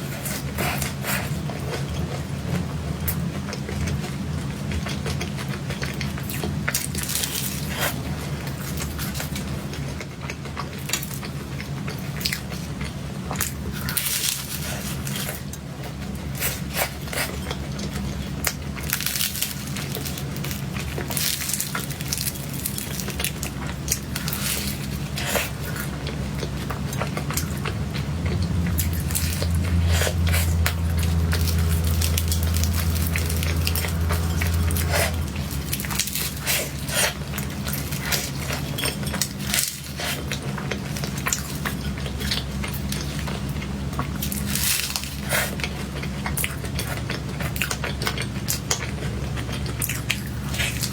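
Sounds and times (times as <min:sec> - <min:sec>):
chewing and biting cake: 0:00.0 - 0:50.9.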